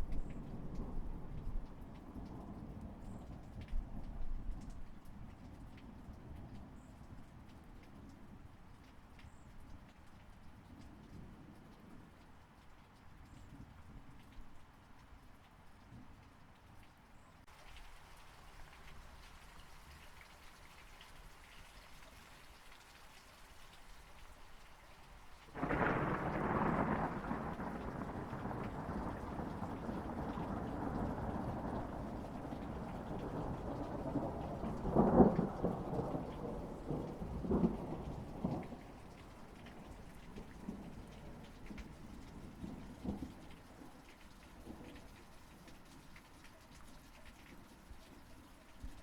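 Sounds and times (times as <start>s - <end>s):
steady rain: 0.0s - 49.0s
thunderclap rumbling: 25.5s - 43.4s.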